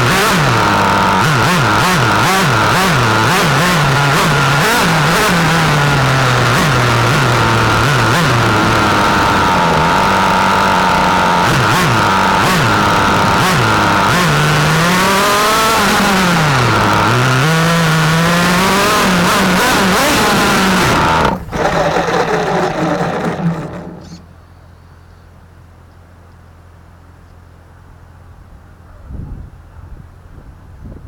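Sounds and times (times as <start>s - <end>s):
small nitro engine revving: 0.0s - 24.4s.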